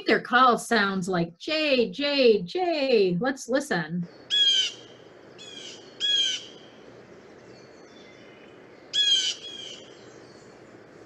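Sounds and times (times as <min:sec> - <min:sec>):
faint background hiss: 0:00.0 - 0:11.0
blue jay calling: 0:04.1 - 0:10.7.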